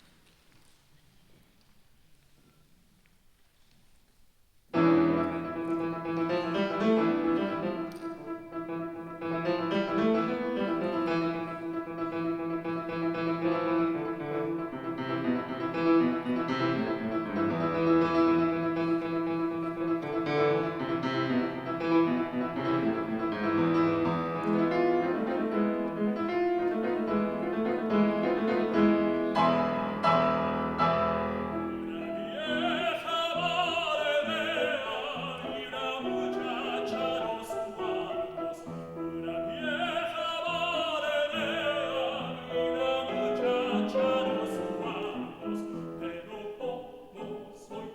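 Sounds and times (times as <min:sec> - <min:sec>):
piano playing: 0:04.8 - 0:47.9
man singing operatic style: 0:31.5 - 0:47.9.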